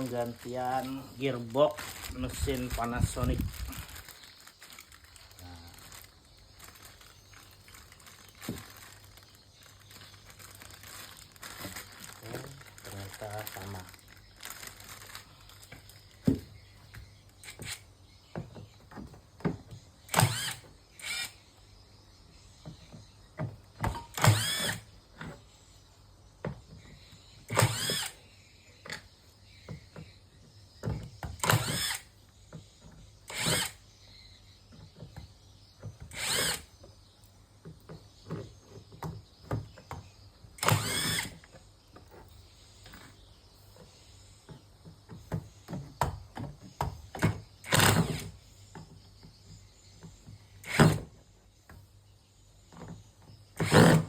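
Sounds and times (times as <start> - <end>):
electric drill whirring: 20.1 - 21.4, 24.1 - 24.9, 27.5 - 28.2, 31.4 - 32.1, 33.3 - 33.8, 36.1 - 36.7, 40.6 - 41.4, 47.6 - 48.3, 53.6 - 54.0.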